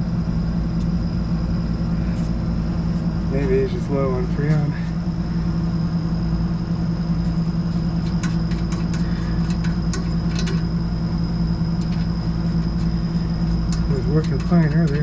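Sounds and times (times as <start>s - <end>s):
air conditioner electrical hum: 0.0s - 15.0s
faint high whine: 0.0s - 15.0s
light clicks and taps: 13.7s - 15.0s.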